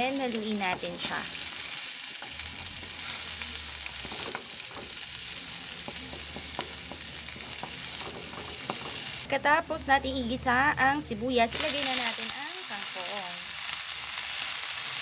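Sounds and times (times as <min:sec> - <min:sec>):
onion and garlic sizzling: 0:00.0 - 0:15.0
utensil scraping a wok: 0:00.7 - 0:09.3.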